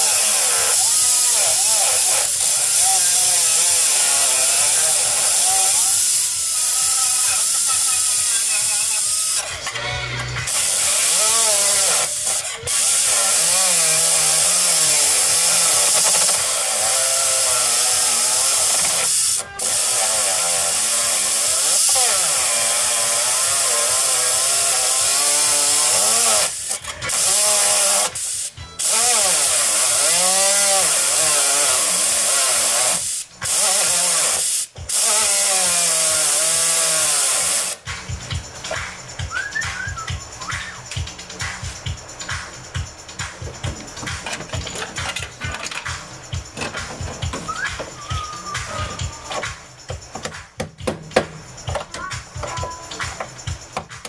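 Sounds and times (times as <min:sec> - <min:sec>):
power tool cutting sheet steel: 0:00.0 - 0:37.9.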